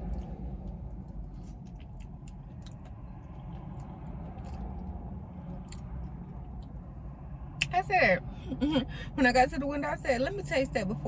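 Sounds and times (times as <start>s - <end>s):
close-up chewing: 0.0s - 6.8s
low rumble inside a car: 0.0s - 11.0s.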